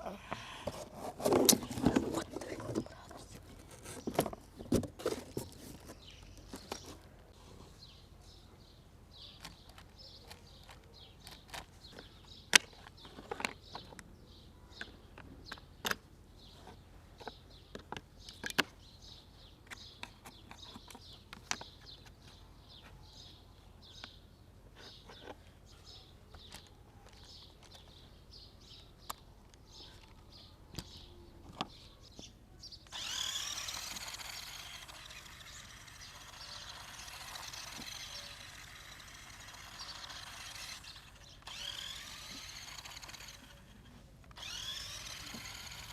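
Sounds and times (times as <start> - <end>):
toy car electric motor whirring: 0.6 - 7.1, 9.4 - 14.0, 32.8 - 45.9.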